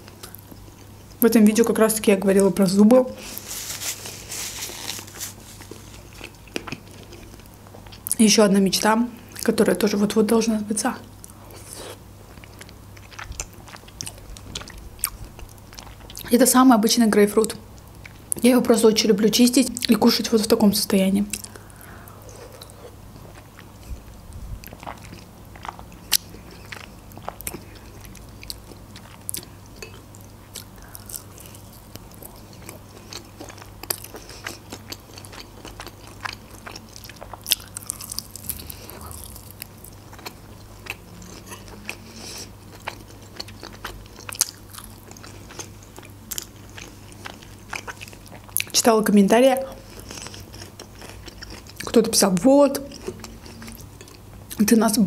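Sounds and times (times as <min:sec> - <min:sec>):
faint steady hum: 0:00.0 - 0:55.0
chewing and eating: 0:03.2 - 0:08.2, 0:11.1 - 0:16.4, 0:21.3 - 0:48.9, 0:49.6 - 0:54.7.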